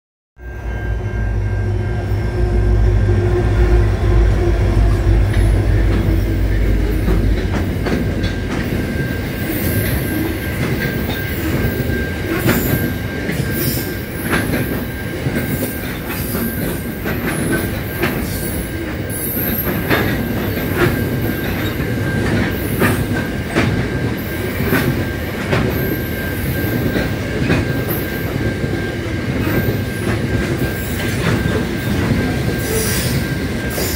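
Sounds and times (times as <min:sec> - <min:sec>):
diesel locomotive rumble: 0:00.9 - 0:33.9
wheels clicking over rail joints: 0:05.3 - 0:25.9.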